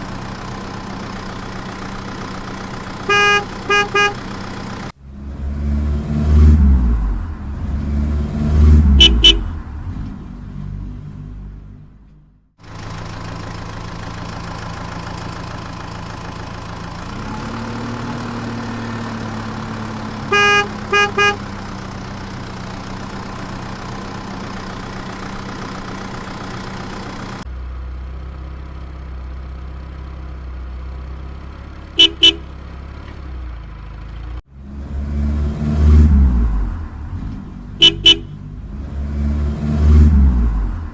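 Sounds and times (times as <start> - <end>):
engine revving in surges: 0.0 - 15.6, 34.2 - 40.9
vehicle engine running: 0.0 - 35.2, 36.2 - 38.8
horn tooting: 3.0 - 4.3, 8.9 - 9.6, 20.2 - 21.5, 32.0 - 32.6, 37.8 - 38.5.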